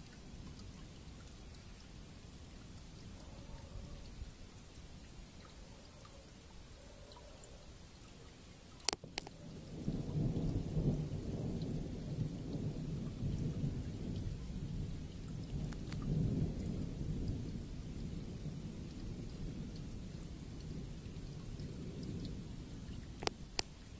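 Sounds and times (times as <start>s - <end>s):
rain falling: 0.0s - 23.9s
thunder cracks and rumble: 9.8s - 22.5s.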